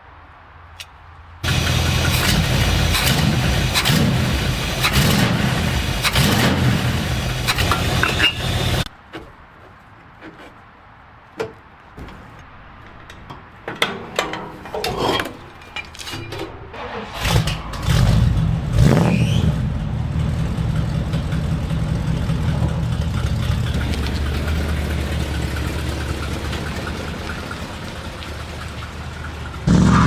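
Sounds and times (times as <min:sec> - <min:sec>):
car engine running loud: 0:01.4 - 0:08.9, 0:16.8 - 0:30.0.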